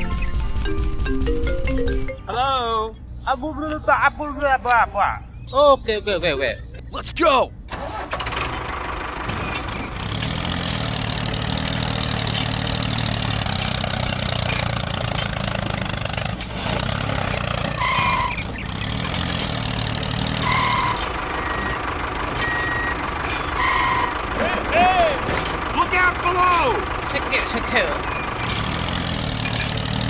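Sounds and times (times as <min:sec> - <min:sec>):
short high beep: 0:03.1 - 0:05.4
vehicle engine humming: 0:08.3 - 0:30.0.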